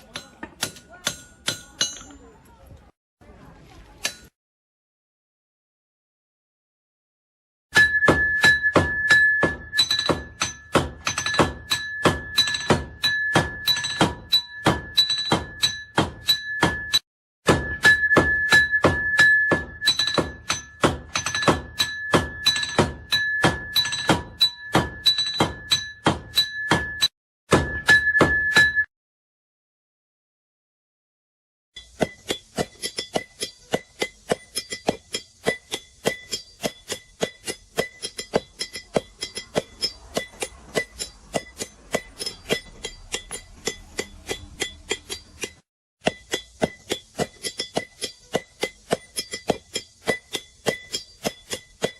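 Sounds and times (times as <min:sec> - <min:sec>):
anvil ringing: 0:00.0 - 0:02.3, 0:07.8 - 0:28.9, 0:31.8 - 0:51.9
hammer striking iron on anvil: 0:00.0 - 0:02.3, 0:04.0 - 0:04.4, 0:07.7 - 0:28.9, 0:31.8 - 0:51.9.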